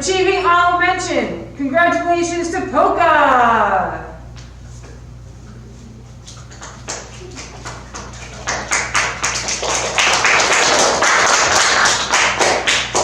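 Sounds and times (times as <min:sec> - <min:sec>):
children clapping: 0:06.3 - 0:13.0.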